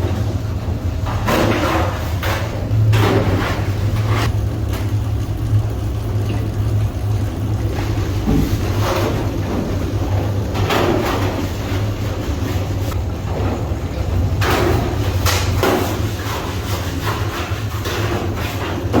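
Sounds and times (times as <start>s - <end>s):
machinery humming: 0.0s - 18.0s.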